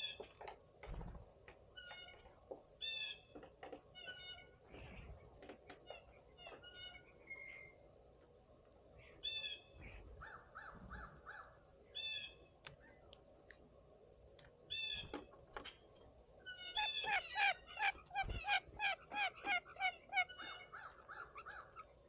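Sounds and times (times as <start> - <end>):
blue jays calling: 16.5 - 22.0.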